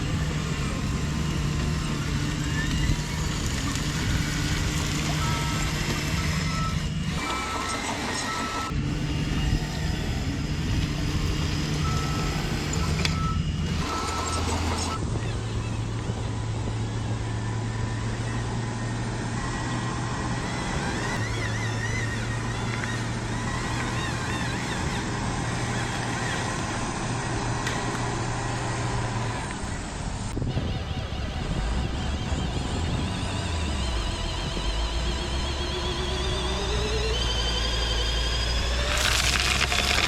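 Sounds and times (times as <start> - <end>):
reversing beeper pulsing: 0.0 - 18.9, 30.5 - 40.0
model truck engine running: 0.0 - 40.0.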